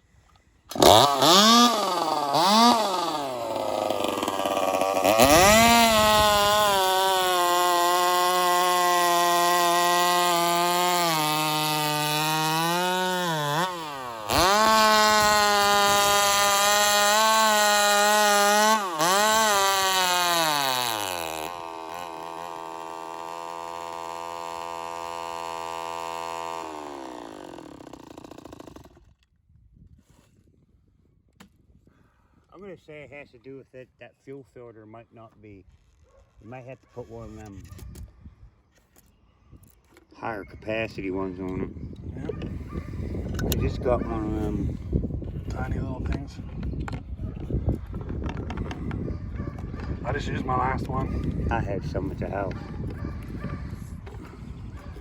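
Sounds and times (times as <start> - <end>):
chainsaw revving and idling: 0.7 - 29.3, 49.6 - 55.0.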